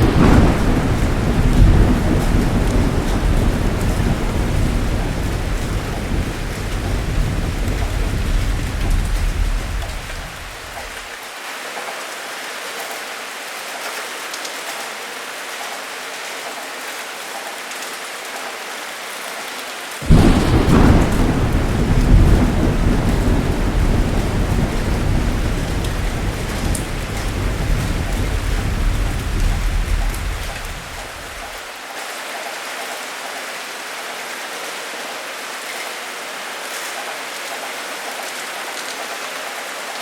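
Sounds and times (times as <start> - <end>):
low thunder rumble: 0.0 - 11.0, 20.0 - 31.6
loud thunderclap rolling: 0.0 - 11.1, 20.0 - 31.6
heavy rain: 0.0 - 40.0.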